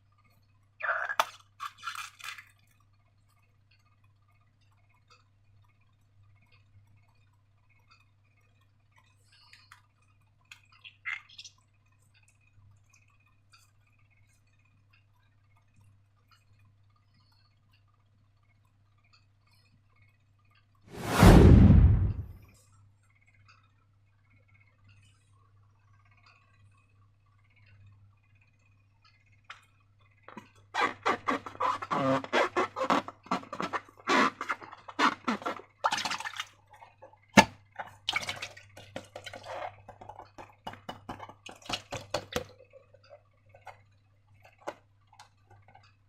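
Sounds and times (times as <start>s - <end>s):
faint steady hum: 2.4s - 46.0s.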